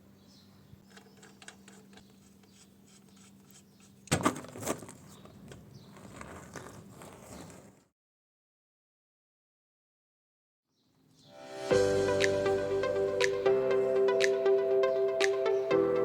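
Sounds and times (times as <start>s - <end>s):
handling clicks and scrapes: 0.8s - 7.9s.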